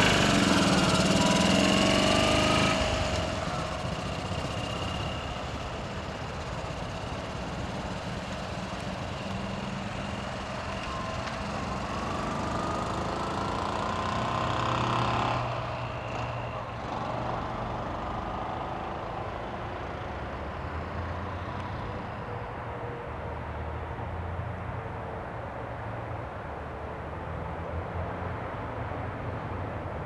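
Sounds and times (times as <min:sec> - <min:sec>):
small car engine pulling away: 0:00.0 - 0:22.2.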